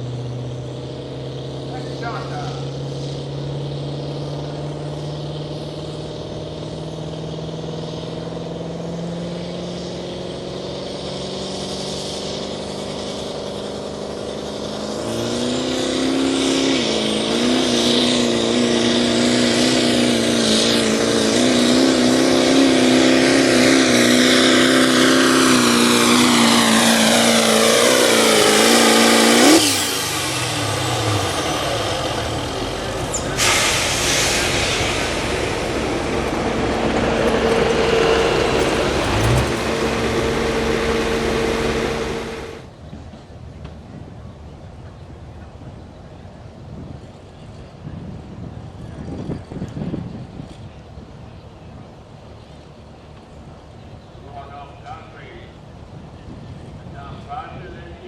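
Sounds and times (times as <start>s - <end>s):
engine winding down whine: 0.0s - 42.7s
tractor engine revving: 0.0s - 42.7s.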